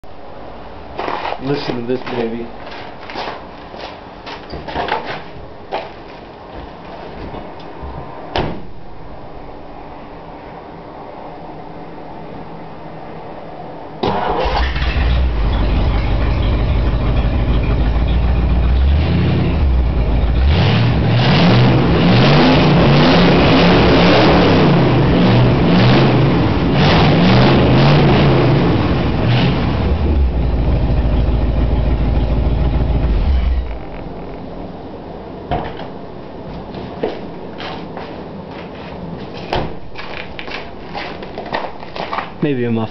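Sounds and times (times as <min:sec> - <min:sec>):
car engine starting and revving: 0:14.0 - 0:34.8.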